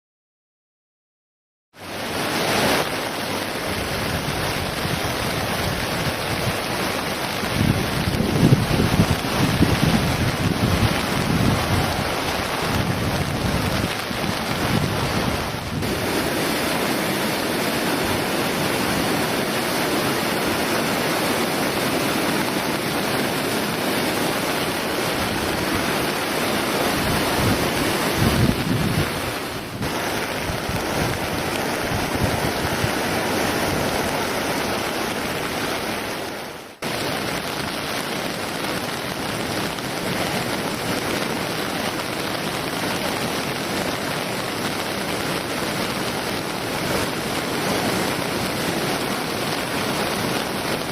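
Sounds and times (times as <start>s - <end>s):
river rushing in flood: 1.8s - 50.9s
wind buffeting microphone: 3.6s - 35.7s.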